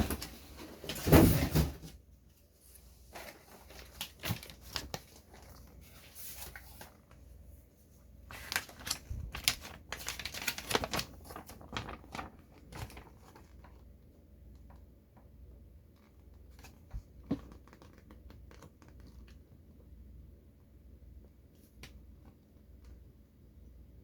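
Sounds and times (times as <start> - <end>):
packaging rustling: 3.1 - 7.4, 8.2 - 13.9.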